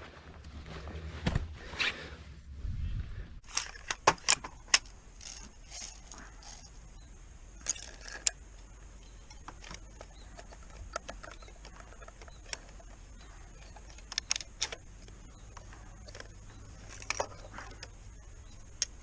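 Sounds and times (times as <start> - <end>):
gear clicking and knocking: 9.0 - 19.0.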